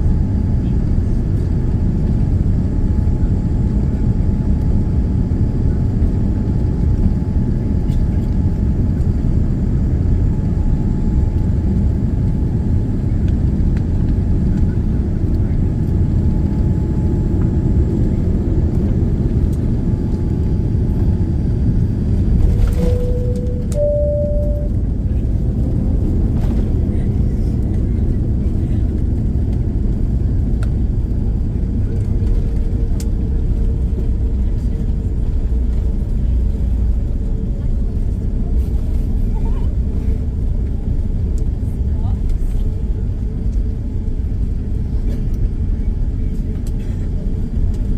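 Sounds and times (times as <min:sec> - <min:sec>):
airplane cabin engine rumble: 0:00.0 - 0:47.9
faint steady whine: 0:22.7 - 0:25.3
steady tone: 0:22.8 - 0:25.0.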